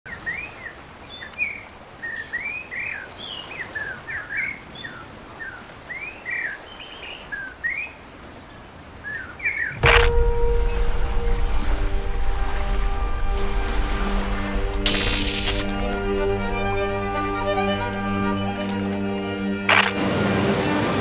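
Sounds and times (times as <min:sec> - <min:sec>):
faint outdoor hiss: 0:00.1 - 0:13.4, 0:14.8 - 0:20.1
sudden loud hit: 0:09.8 - 0:15.6.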